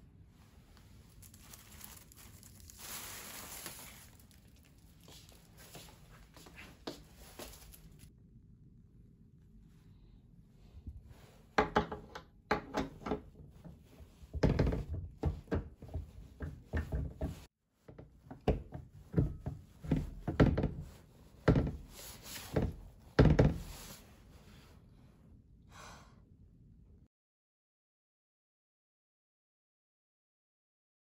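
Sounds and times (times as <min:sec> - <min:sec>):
household thunks and knocks: 0:11.6 - 0:13.4, 0:14.3 - 0:23.8.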